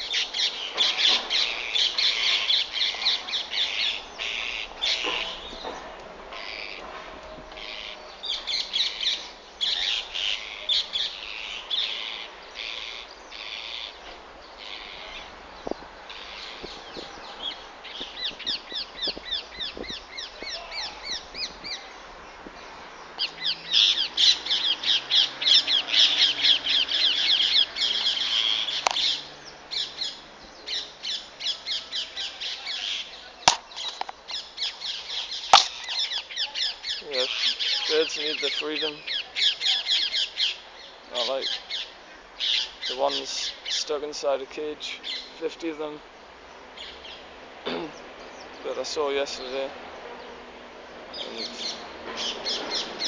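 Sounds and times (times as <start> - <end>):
parrots squawking: 23.2 - 40.6.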